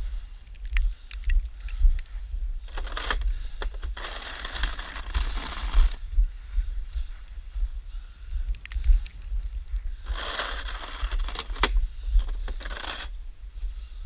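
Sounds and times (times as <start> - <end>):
wind buffeting microphone: 0.0 - 14.0
snow shovel scraping snow: 4.0 - 6.0, 10.1 - 11.5.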